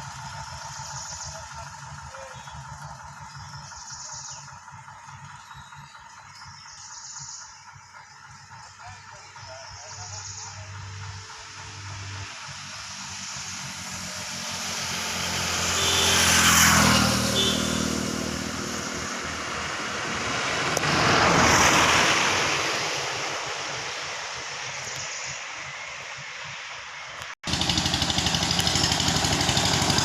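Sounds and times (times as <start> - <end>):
tractor diesel engine running: 0.0 - 30.0
rushing noise: 11.2 - 27.2.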